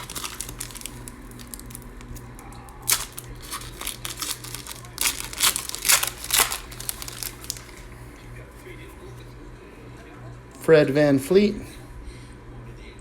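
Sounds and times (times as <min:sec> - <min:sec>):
wrapper crinkling and tearing: 0:00.0 - 0:07.9
low steady hum: 0:00.0 - 0:13.0.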